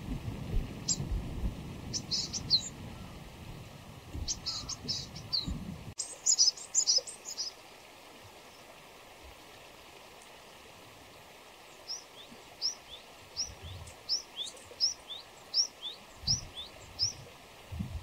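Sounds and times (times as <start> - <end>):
songbirds chirping: 1.8 - 3.4, 4.1 - 8.8, 11.4 - 17.5.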